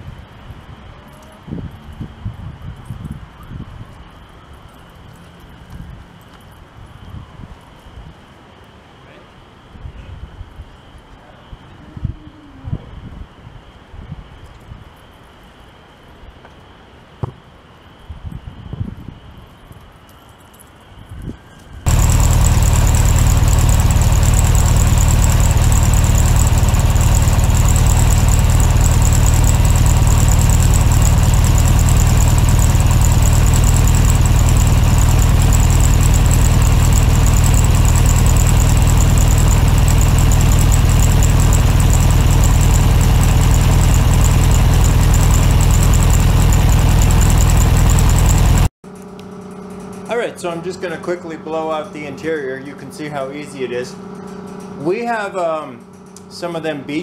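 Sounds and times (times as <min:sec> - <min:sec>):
motor running loudly: 0:21.9 - 0:57.0.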